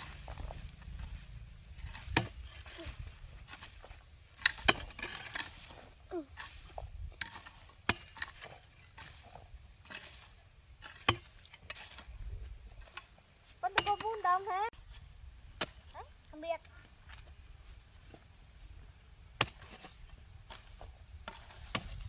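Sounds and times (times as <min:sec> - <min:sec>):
hoe striking hard ground: 0:00.0 - 0:12.1, 0:12.8 - 0:14.5, 0:15.6 - 0:15.9, 0:19.3 - 0:22.0.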